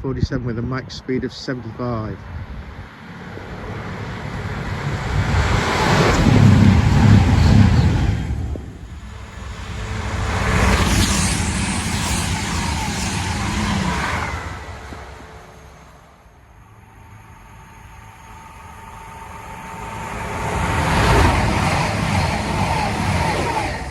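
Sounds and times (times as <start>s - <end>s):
passenger train passing: 0.3s - 23.9s.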